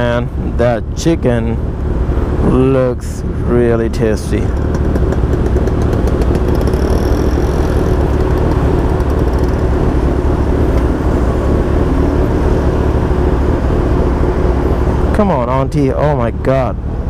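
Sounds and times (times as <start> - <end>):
hum of traffic: 0.0 - 17.0
motorcycle engine idling: 4.3 - 10.0.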